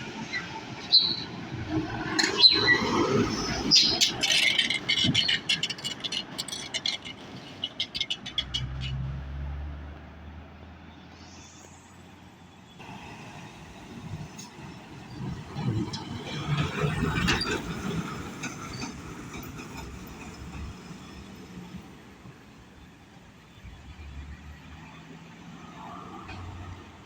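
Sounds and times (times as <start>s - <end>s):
sharp clicks and rattles: 4.1s - 9.0s.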